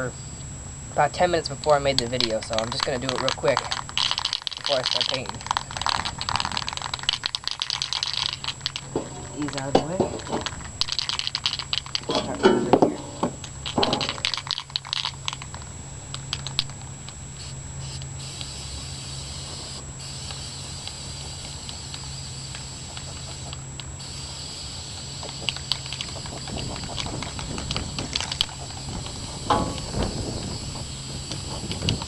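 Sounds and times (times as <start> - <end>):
aerosol can spraying: 17.4 - 32.0.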